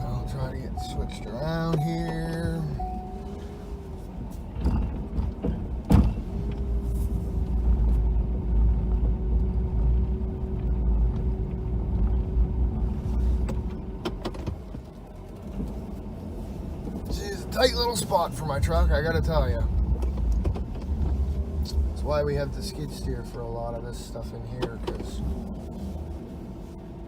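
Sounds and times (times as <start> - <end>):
steady whine: 0.0 - 3.9
truck engine rumbling: 0.0 - 27.0.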